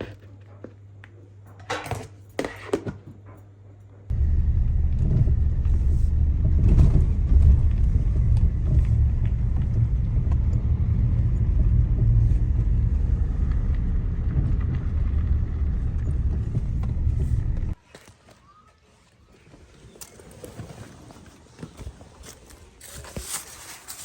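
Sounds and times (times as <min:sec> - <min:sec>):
loud low rumble: 0:04.1 - 0:17.8.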